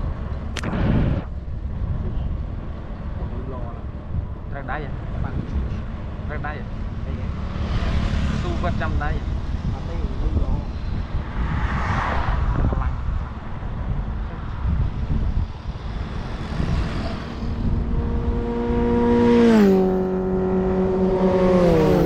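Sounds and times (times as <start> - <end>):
wind and road noise: 0.0 - 22.0
vehicle engine running: 13.3 - 22.0.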